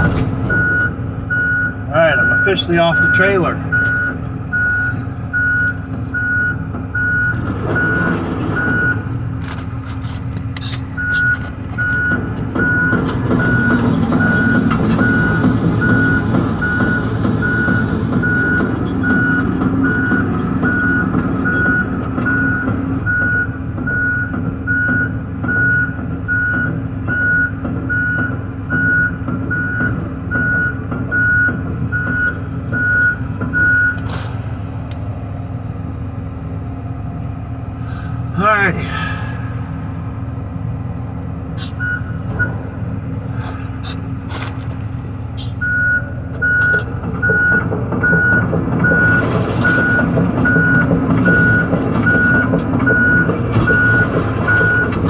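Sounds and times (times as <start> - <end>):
excavator diesel engine running: 0.0 - 55.0
travel alarm beeping: 0.5 - 9.1, 10.6 - 34.1, 41.6 - 42.6, 45.6 - 55.0.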